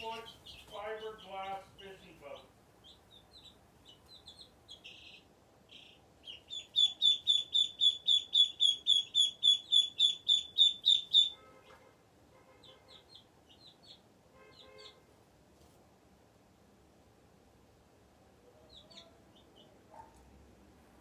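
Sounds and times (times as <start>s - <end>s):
baby chicks peeping: 0.0s - 11.8s, 12.6s - 15.7s, 18.6s - 20.2s.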